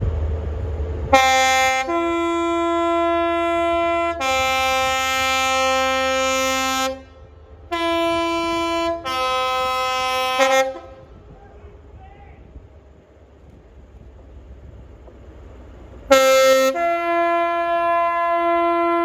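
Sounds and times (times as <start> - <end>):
low rumble of train: 0.0 - 19.0
two-tone train horn blasts: 1.1 - 11.4, 16.1 - 19.0.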